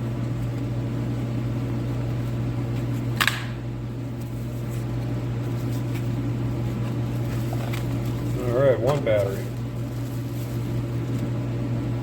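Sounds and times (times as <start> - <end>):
heater fan humming: 0.0 - 12.0.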